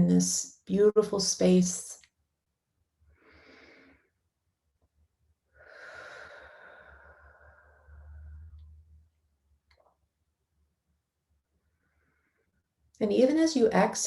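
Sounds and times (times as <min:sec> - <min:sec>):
person breathing deeply: 0:03.1 - 0:04.1, 0:05.6 - 0:08.7.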